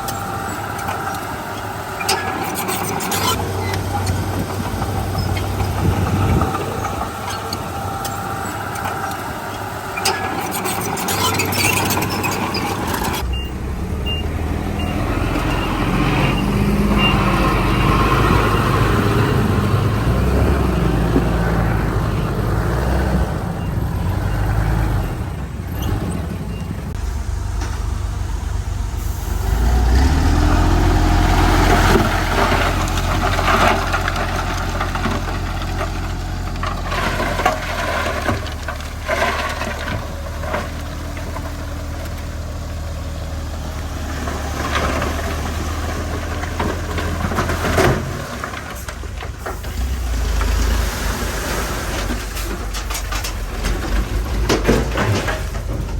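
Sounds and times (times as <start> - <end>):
diesel engines working: 0.0 - 55.9
high beeps: 13.3 - 17.2.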